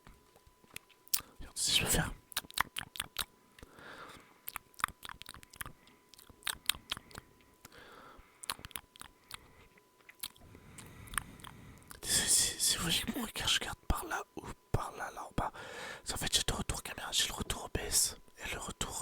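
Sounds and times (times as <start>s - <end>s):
mouth clicks: 2.3s - 3.3s, 4.5s - 7.8s.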